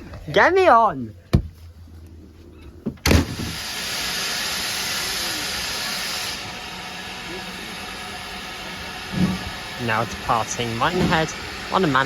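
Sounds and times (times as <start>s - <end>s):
steam locomotive hissing: 3.1s - 12.0s.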